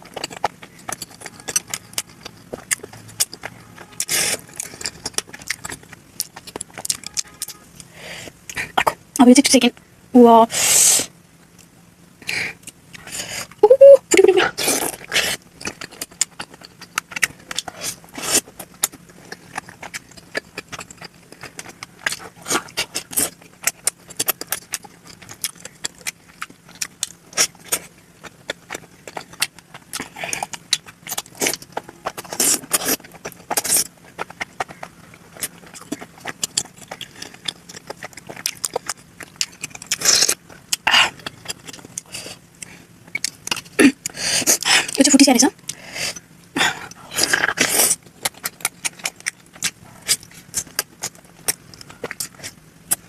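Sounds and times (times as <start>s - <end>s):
chewing and mouth sounds: 0.0s - 9.6s, 10.6s - 53.0s
short voiced sound: 13.6s - 14.5s.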